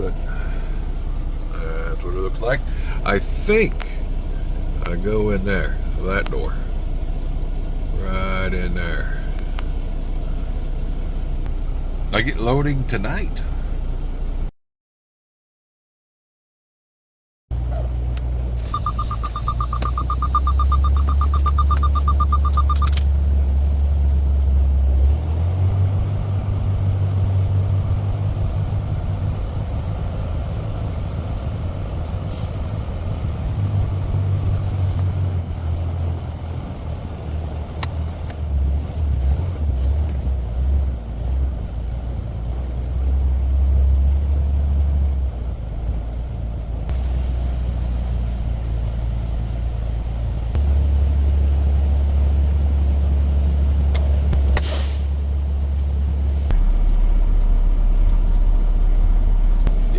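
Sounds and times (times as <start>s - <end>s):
truck diesel engine running: 0.0s - 14.5s, 17.6s - 59.9s
rapid warning beeps: 18.7s - 23.0s.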